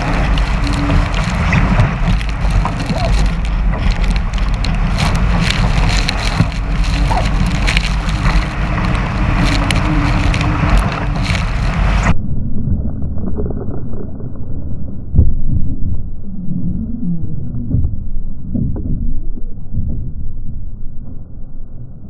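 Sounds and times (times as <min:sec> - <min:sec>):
water splashing against hull: 0:00.0 - 0:12.1
wind buffeting microphone: 0:00.0 - 0:12.2.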